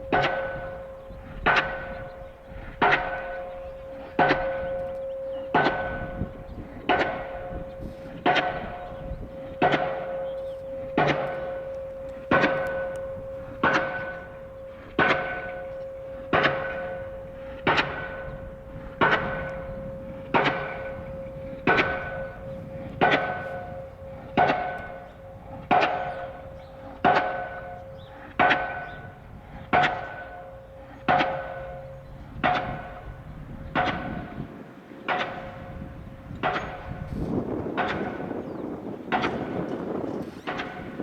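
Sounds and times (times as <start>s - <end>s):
pile hammer clanging on steel: 29.7s - 41.0s.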